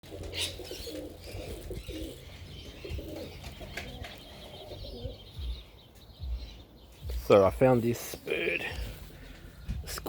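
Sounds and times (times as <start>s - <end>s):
pigeons cooing: 0.0s - 6.8s
high bird chirping: 0.3s - 10.0s.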